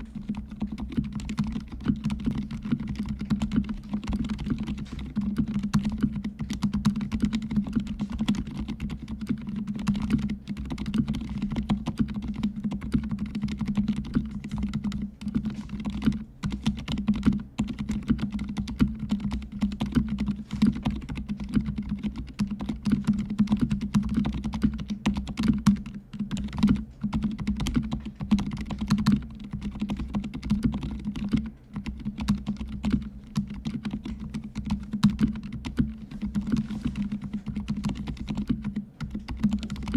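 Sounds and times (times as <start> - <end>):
soft muted keyboard typing: 0.0 - 39.9.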